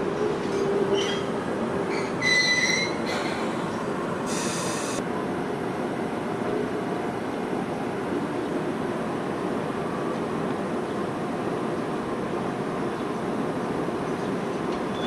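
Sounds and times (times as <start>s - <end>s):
train hum: 0.0s - 15.0s
train wheels rumbling on rails: 0.0s - 15.0s
high-pitched wheel squeals: 1.9s - 3.1s.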